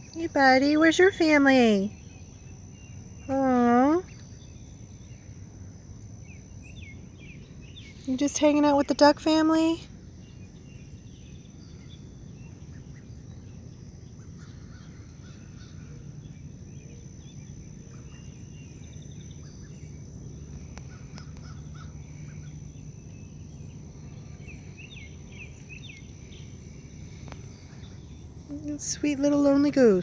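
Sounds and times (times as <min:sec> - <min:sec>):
high insect drone: 0:00.0 - 0:30.0
bird calls: 0:20.6 - 0:30.0.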